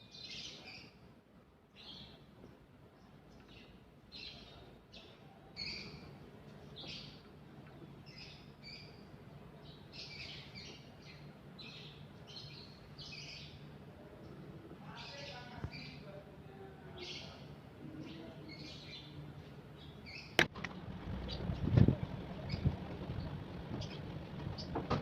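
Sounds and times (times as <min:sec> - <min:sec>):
faint bird chirps: 0:03.0 - 0:06.1.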